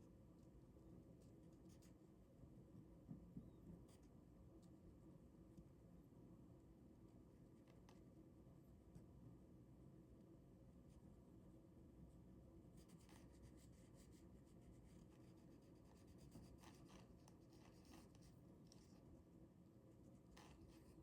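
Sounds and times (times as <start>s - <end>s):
ballpoint pen scratching on paper: 12.8s - 19.0s, 20.1s - 21.0s.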